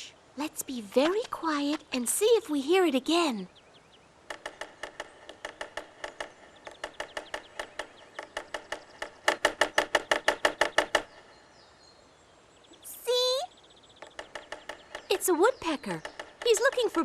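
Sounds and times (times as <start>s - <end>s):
woodpecker pecking on tree: 0.6s - 3.1s, 4.2s - 11.4s, 13.6s - 17.0s.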